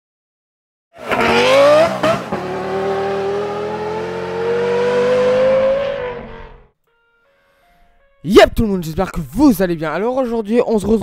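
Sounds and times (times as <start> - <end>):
car engine accelerating hard: 1.0 - 6.7.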